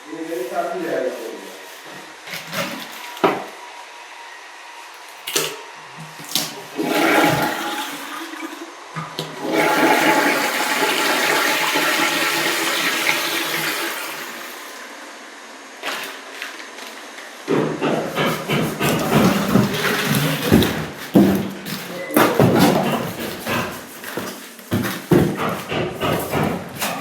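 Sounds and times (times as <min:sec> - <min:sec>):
toilet flushing: 0:01.9 - 0:03.6, 0:05.2 - 0:15.1, 0:18.0 - 0:24.0.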